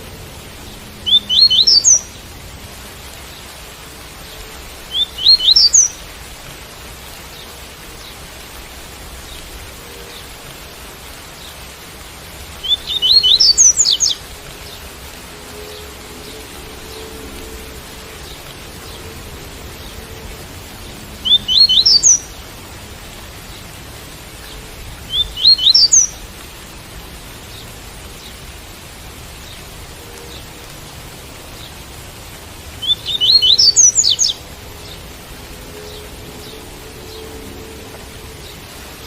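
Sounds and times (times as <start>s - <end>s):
rain hiss: 0.0s - 39.0s
bird whistling rising notes: 1.0s - 2.0s, 12.6s - 14.2s, 21.2s - 22.2s, 25.1s - 26.1s, 32.8s - 34.4s.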